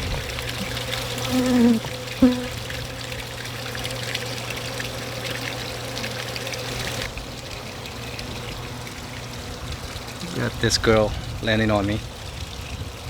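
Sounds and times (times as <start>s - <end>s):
honeybees buzzing: 0.0s - 3.9s
bees passing close by: 0.0s - 4.7s.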